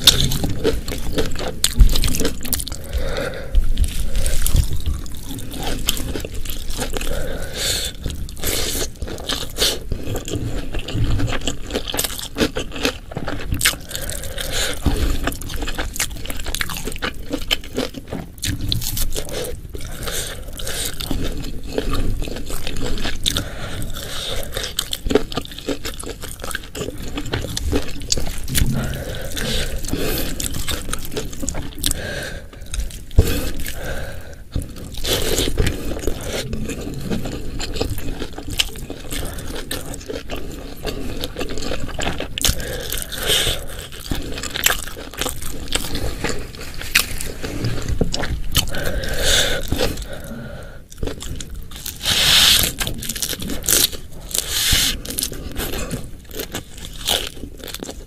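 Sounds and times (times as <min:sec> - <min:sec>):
crunchy bites: 0:00.0 - 0:07.4, 0:08.2 - 0:58.0
person chewing: 0:00.0 - 0:58.0.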